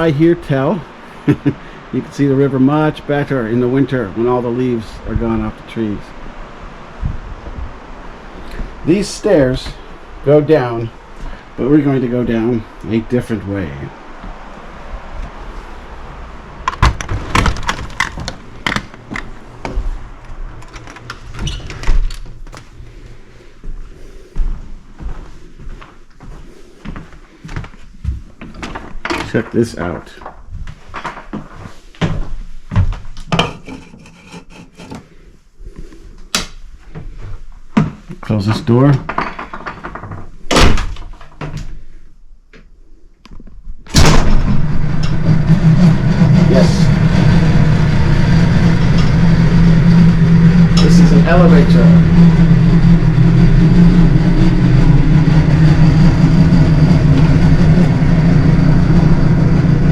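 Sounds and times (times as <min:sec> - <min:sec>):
elevator jolt: 0:16.6 - 0:19.3, 0:39.1 - 0:41.6, 0:43.9 - 0:59.9
footsteps: 0:19.0 - 0:20.6, 0:22.2 - 0:29.4, 0:30.5 - 0:33.2
door shutting with a thump: 0:40.5 - 0:41.6
elevator motor humming: 0:43.9 - 0:59.9.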